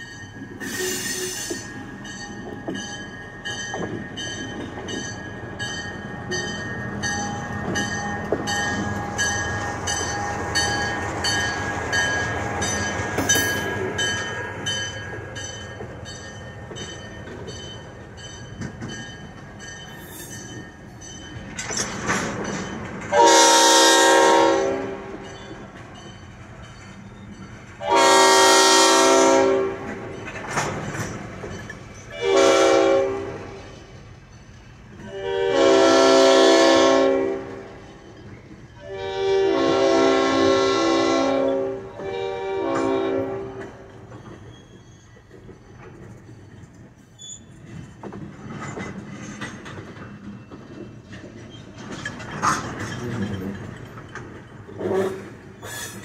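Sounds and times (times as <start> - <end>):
locomotive horn blasts: 23.1 - 25.1, 27.8 - 29.9, 32.1 - 33.4, 35.1 - 37.6, 38.8 - 43.6.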